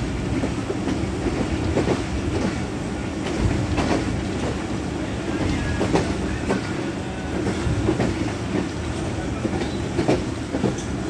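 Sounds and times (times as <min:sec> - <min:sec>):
train rumbling on tracks: 0:00.0 - 0:11.0.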